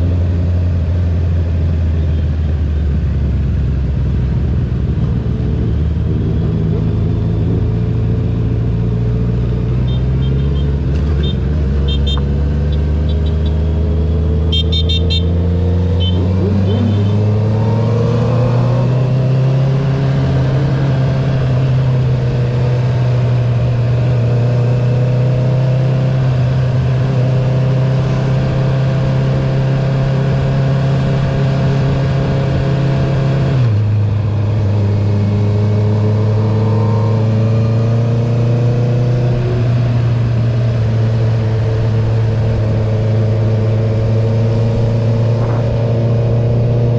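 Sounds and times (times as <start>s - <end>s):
motorcycle engine running: 1.0s - 15.4s, 16.0s - 17.8s, 40.1s - 46.9s.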